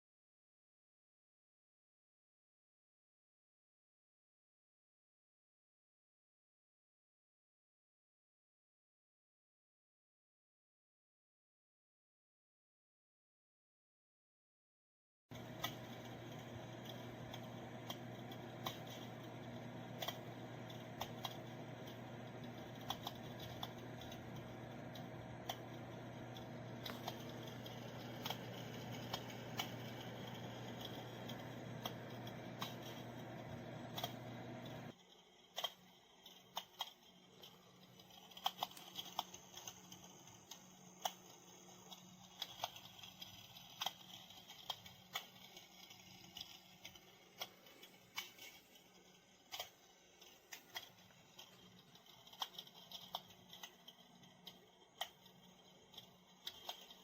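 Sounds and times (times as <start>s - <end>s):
crackling fire sound effect: 15.3s - 57.0s
heater fan humming: 15.3s - 57.0s.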